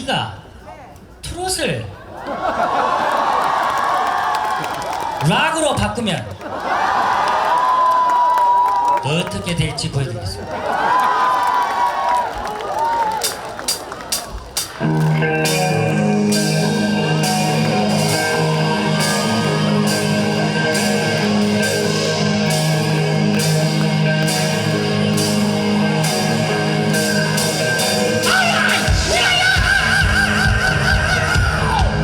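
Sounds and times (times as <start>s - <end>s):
heavy drums: 13.1s - 32.0s
bending guitar lead line: 14.6s - 32.0s
electric guitar chords: 14.6s - 32.0s.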